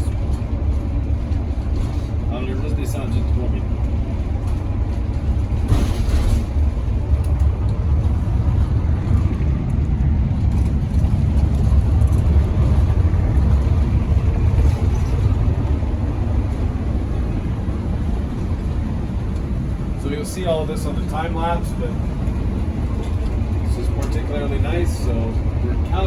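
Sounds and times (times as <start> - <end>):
engine and road rumble: 0.0 - 26.0.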